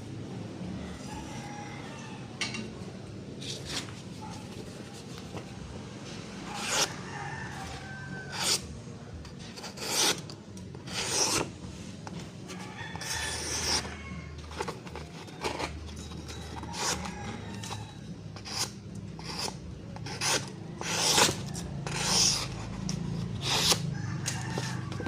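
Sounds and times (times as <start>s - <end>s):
rasping strokes of filing: 6.5s - 6.9s, 8.2s - 8.6s, 9.6s - 11.5s, 13.0s - 13.9s, 14.5s - 25.0s.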